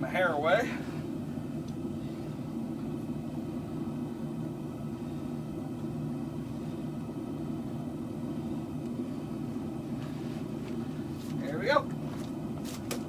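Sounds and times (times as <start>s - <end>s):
gas forge burners roaring: 0.0s - 13.0s.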